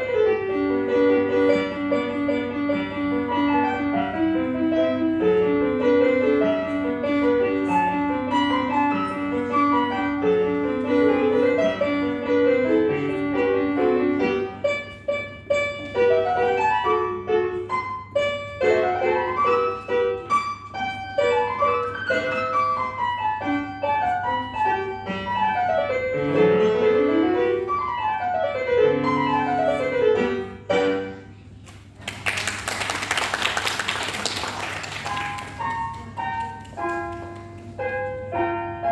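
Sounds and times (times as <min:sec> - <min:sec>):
solo piano playing: 0:00.0 - 0:31.3, 0:34.5 - 0:38.9
audience applause: 0:32.0 - 0:36.2.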